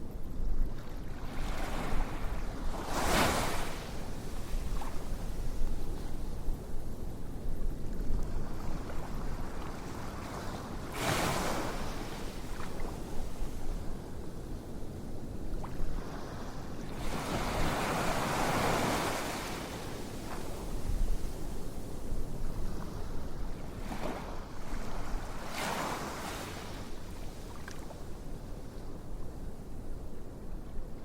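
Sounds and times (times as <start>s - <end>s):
ocean waves washing in: 15.8s - 20.6s.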